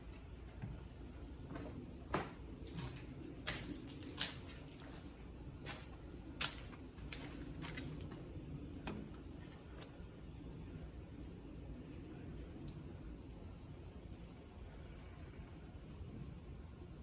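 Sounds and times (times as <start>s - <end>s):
squirrels cracking and gnawing food: 0.0s - 10.4s, 13.8s - 16.0s.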